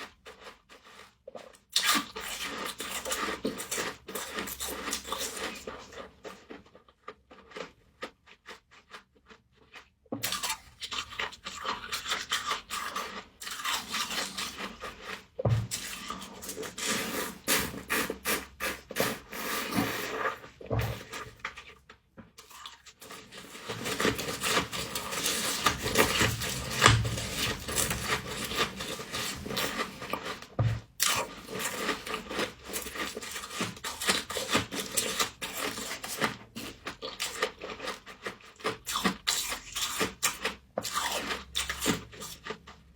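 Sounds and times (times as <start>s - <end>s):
frost being scraped and crunched: 10.2s - 21.8s, 22.5s - 42.6s.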